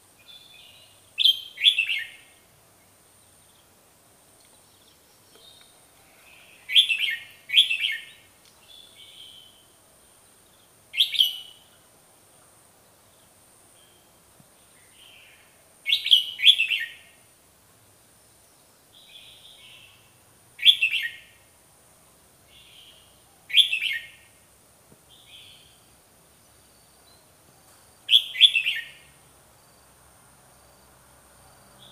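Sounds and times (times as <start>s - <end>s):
bulbul calling: 0.3s - 2.3s, 6.4s - 9.6s, 20.6s - 21.3s, 22.6s - 24.3s, 28.1s - 29.1s.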